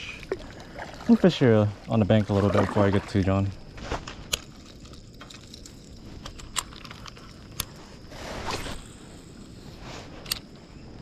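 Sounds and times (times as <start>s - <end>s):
water swishing: 0.0s - 3.7s
low outdoor background: 0.0s - 11.0s
clicks and knocks of fishing gear: 3.2s - 7.8s.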